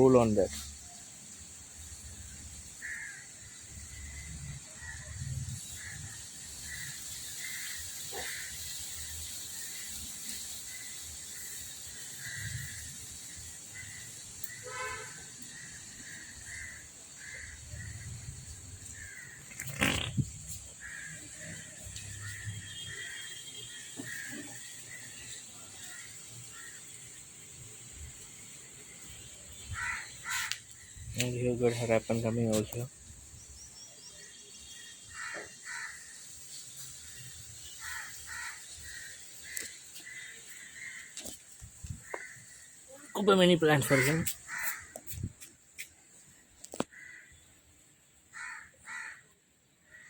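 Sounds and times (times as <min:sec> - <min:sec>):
crow calling: 0:02.8 - 0:03.3, 0:13.8 - 0:18.2, 0:18.8 - 0:20.2, 0:20.8 - 0:25.2, 0:29.6 - 0:31.0, 0:35.1 - 0:36.2, 0:37.6 - 0:41.4, 0:42.0 - 0:45.5, 0:46.7 - 0:47.4, 0:48.3 - 0:50.0.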